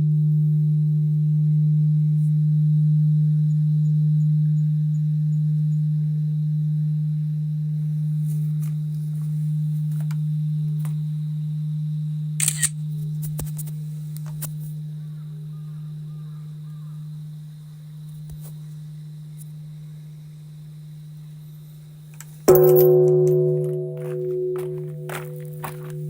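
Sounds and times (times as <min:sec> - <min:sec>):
deep temple bell humming: 0:00.0 - 0:13.2, 0:22.4 - 0:26.0
sharp clicks: 0:12.4 - 0:12.7
faint bird chirps: 0:14.9 - 0:18.0.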